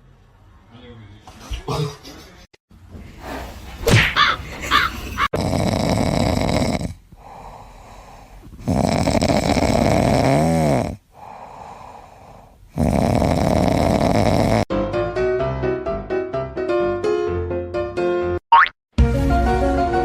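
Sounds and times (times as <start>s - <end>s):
pet snoring: 5.2s - 14.7s.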